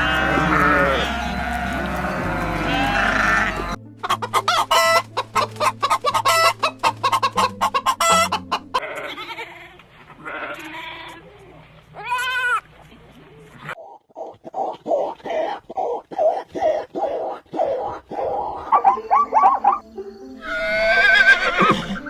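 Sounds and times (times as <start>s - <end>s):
background music: 0.0s - 8.9s, 18.7s - 22.0s
animal calls: 0.0s - 9.2s, 13.6s - 19.8s, 20.4s - 22.0s.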